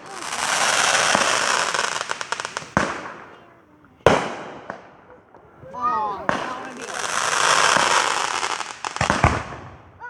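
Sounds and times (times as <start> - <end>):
firework hiss and crackling: 0.0 - 3.4, 5.6 - 10.0
firework bangs: 0.0 - 10.0.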